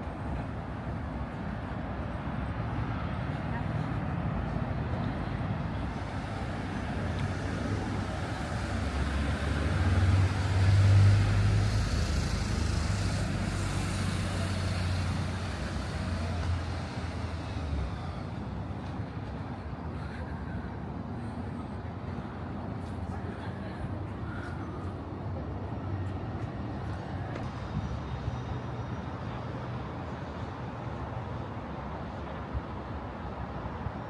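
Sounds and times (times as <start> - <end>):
street noise: 0.0 - 34.0
vehicle engine passing by: 7.3 - 18.0.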